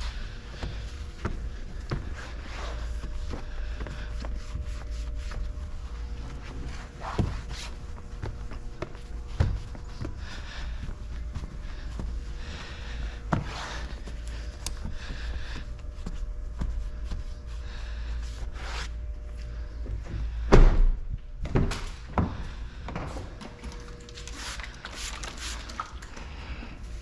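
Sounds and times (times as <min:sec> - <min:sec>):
steady low hum: 0:00.0 - 0:27.0
loud thump: 0:20.5 - 0:21.0.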